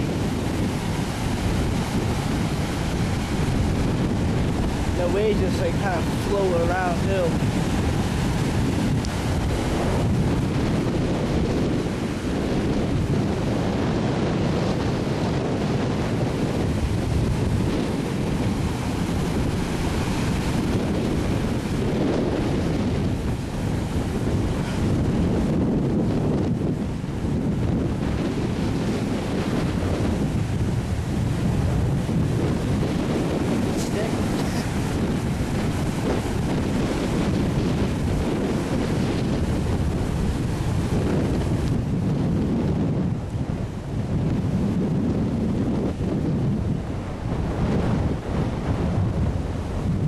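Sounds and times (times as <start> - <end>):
waves washing: 0.0 - 50.0
wind buffeting microphone: 0.0 - 50.0.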